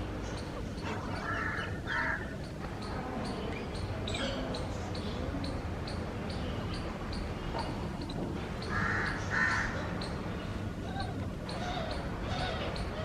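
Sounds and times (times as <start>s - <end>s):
birds chirping: 0.0s - 13.0s
crow cawing: 1.2s - 2.3s, 8.7s - 9.8s.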